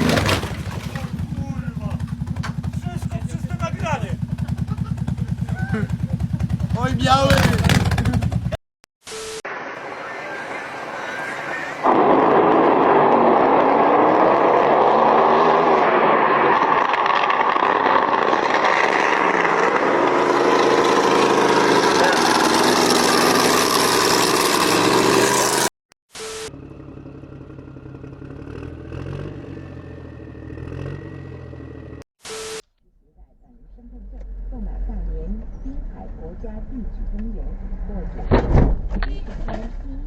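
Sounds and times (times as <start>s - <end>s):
vehicle engine running: 0.0s - 8.6s, 15.9s - 25.7s, 26.5s - 32.0s, 33.1s - 38.3s.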